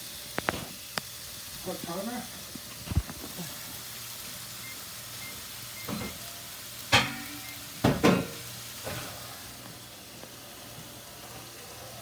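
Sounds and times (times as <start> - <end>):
burger patties sizzling in pan: 0.0 - 12.0.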